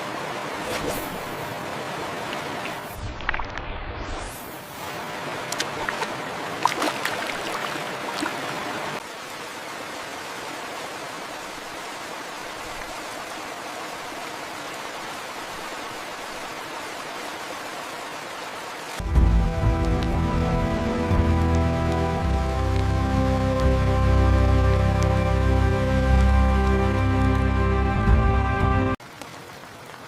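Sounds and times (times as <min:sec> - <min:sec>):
raindrops ticking: 0:19.0 - 0:23.9
heavy rain hissing: 0:19.0 - 0:27.8
music: 0:19.0 - 0:29.0.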